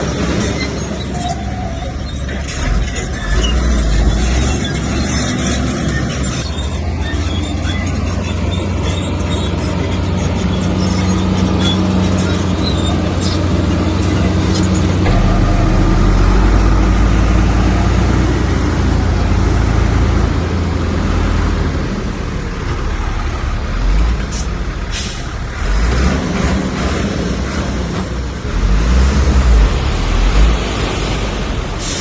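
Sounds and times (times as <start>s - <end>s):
heavy diesel engine running: 2.0s - 25.8s
sharp metal clanks: 15.0s - 19.4s.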